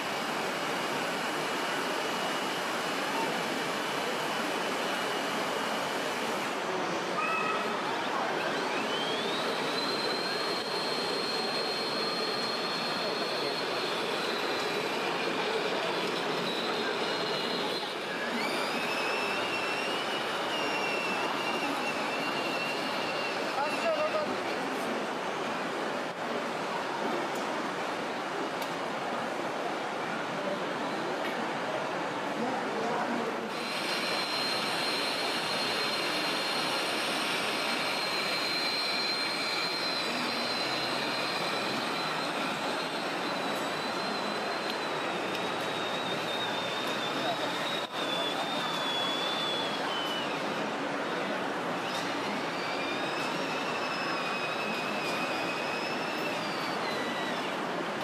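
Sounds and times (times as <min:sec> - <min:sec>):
high electric motor whine: 0:00.0 - 0:06.6, 0:08.4 - 0:24.0, 0:33.5 - 0:50.6
busy exhibition hall noise: 0:00.0 - 0:58.0
dense background noise: 0:00.0 - 0:58.0.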